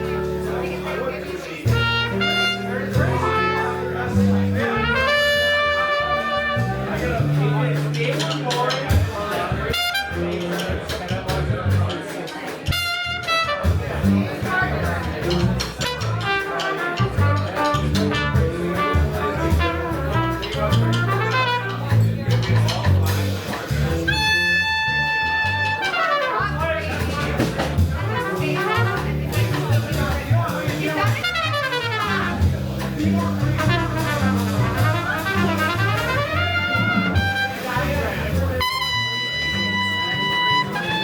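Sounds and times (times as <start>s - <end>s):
brass horn melody: 0.0s - 7.4s, 9.6s - 10.5s, 12.7s - 14.2s, 15.3s - 22.4s, 23.4s - 27.3s, 27.9s - 30.2s, 30.8s - 41.0s
bass line: 0.0s - 41.0s
jazz band playing: 0.0s - 41.0s
brass horn runs: 33.6s - 41.0s.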